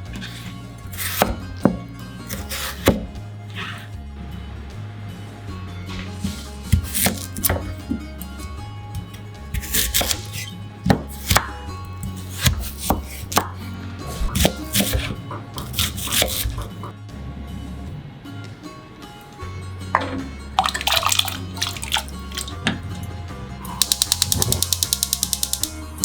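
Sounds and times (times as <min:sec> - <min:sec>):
background music: 0:00.0 - 0:26.0
knife chopping on cutting board: 0:00.2 - 0:03.8, 0:06.2 - 0:07.9, 0:09.0 - 0:16.8.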